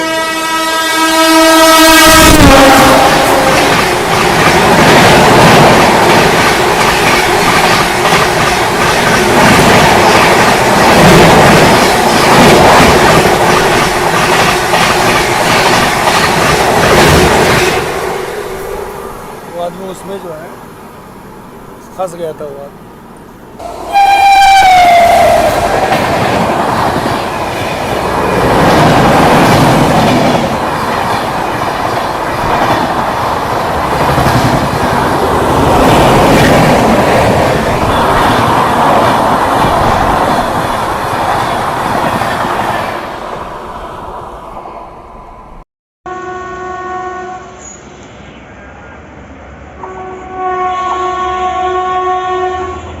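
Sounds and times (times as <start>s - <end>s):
train horn: 0.0s - 3.8s, 23.6s - 25.8s, 46.1s - 47.8s, 49.8s - 53.0s
train coaches rushing and rattling: 1.4s - 44.2s.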